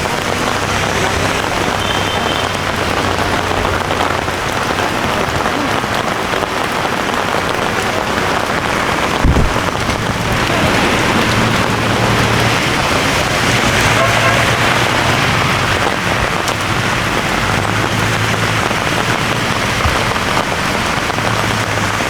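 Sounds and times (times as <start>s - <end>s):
heavy rain: 0.0s - 22.0s
low thump: 9.2s - 9.9s.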